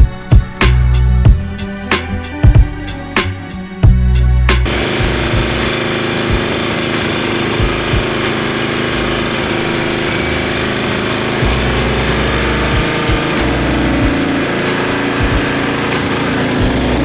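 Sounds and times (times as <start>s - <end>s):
snowblower engine running: 4.6s - 17.0s.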